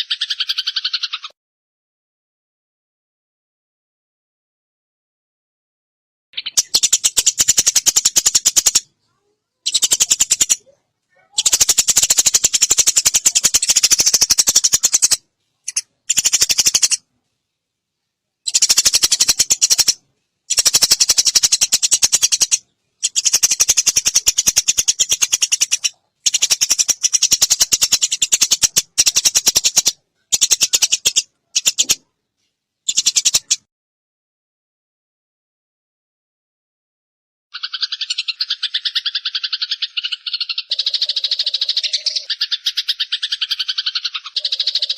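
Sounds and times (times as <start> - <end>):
sparrow chattering chirps: 0.0 - 1.3, 6.4 - 17.0, 18.4 - 32.0, 32.8 - 33.6, 37.6 - 44.9.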